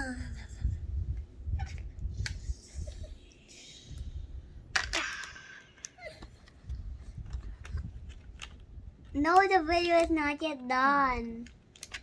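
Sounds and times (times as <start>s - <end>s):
plastic toy clicking and rubbing: 4.8s - 12.0s.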